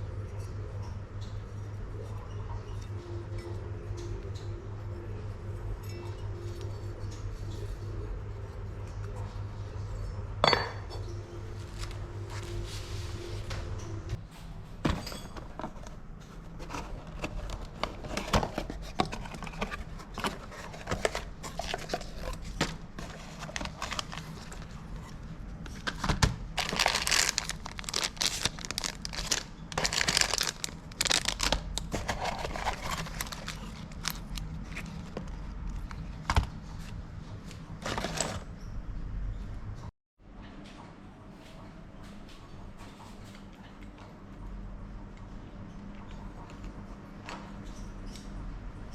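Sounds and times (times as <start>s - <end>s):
crinkling rustling: 15.6s - 36.0s.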